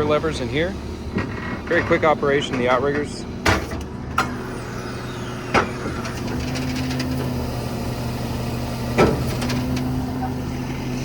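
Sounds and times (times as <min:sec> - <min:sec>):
diesel engine running: 0:00.0 - 0:11.0
sharp clunk: 0:09.0 - 0:09.7.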